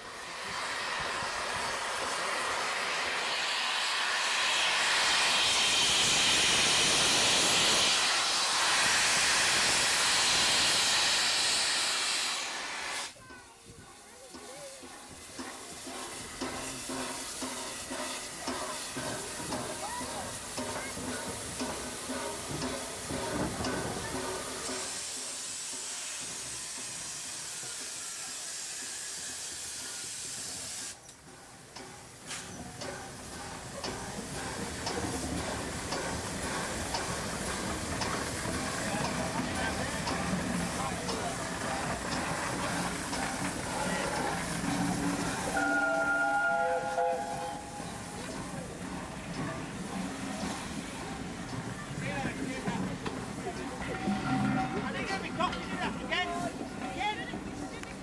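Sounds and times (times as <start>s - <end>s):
steam locomotive hiss: 0.0s - 58.0s.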